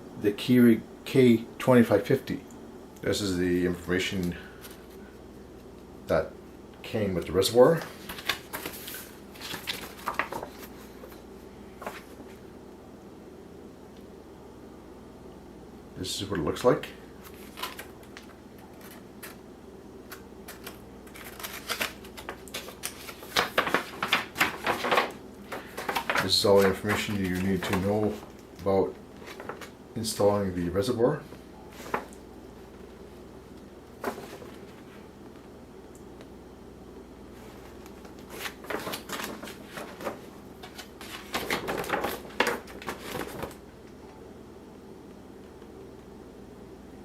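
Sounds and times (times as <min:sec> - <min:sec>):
paper rustling and crackling: 0:07.6 - 0:12.4, 0:17.2 - 0:19.4, 0:20.1 - 0:29.8, 0:31.7 - 0:32.9, 0:34.0 - 0:35.0, 0:37.4 - 0:43.6.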